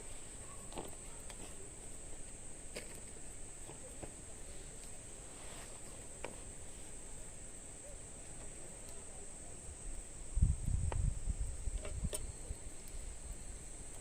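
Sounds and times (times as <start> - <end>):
insects trilling: 0.0 - 14.0
campfire crackling and popping: 5.9 - 14.0.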